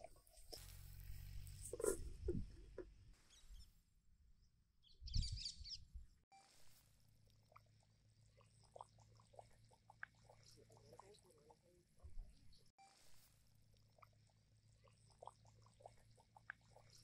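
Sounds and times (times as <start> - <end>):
faint small ticks: 0.0 - 2.9, 12.6 - 17.0
bird chirping: 3.2 - 3.8, 4.8 - 6.0.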